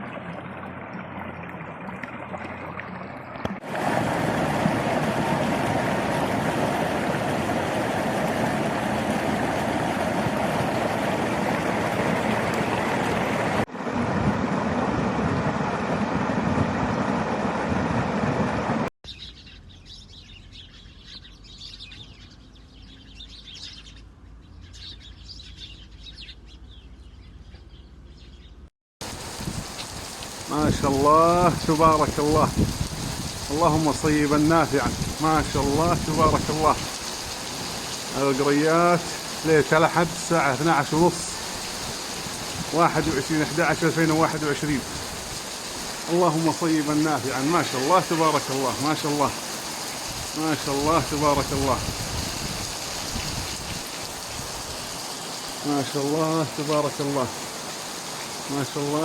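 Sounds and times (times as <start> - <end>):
running floodwater: 0.0 - 14.3, 29.0 - 59.0
heavy rain: 3.6 - 15.9, 29.0 - 59.0
birds chirping: 19.0 - 28.7, 33.4 - 51.9.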